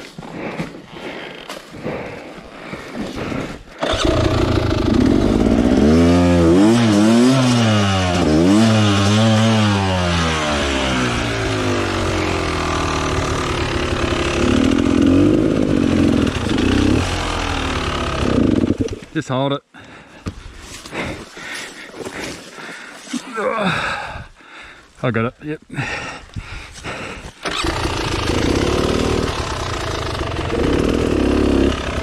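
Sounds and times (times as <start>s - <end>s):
motorcycle engine revving and idling: 3.8s - 19.1s, 27.4s - 32.0s.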